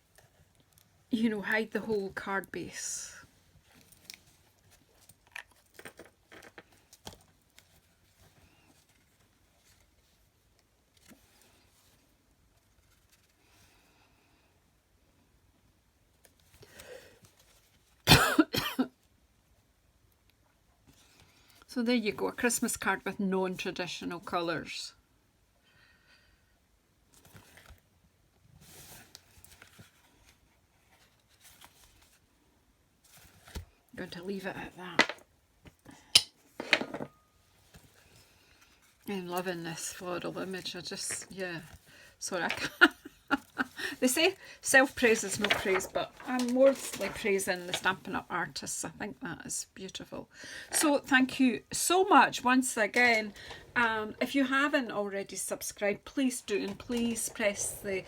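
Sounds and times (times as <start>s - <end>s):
paper and card rustling and tapping: 33.1s - 33.8s, 44.2s - 48.1s.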